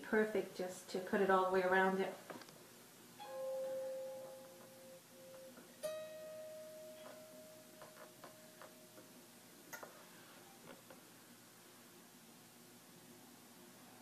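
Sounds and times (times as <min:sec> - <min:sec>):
plucked guitar notes: 0:03.2 - 0:09.0.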